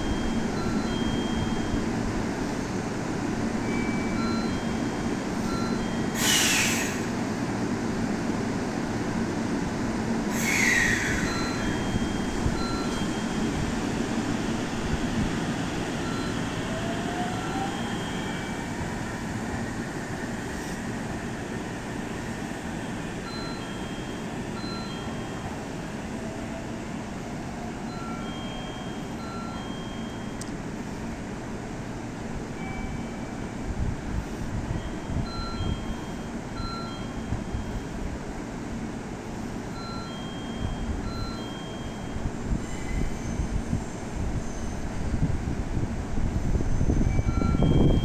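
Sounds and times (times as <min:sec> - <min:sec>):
electric train hum: 0:00.0 - 0:48.0
short electronic chime tones: 0:03.6 - 0:06.2, 0:11.2 - 0:13.4, 0:23.3 - 0:25.5, 0:27.9 - 0:30.4, 0:39.8 - 0:42.2.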